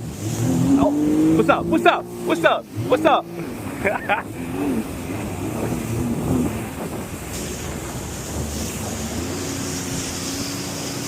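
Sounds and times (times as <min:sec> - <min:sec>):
jet ski engine: 0:00.0 - 0:11.0
water spray hiss: 0:00.0 - 0:11.0
wind on microphone: 0:02.7 - 0:11.0.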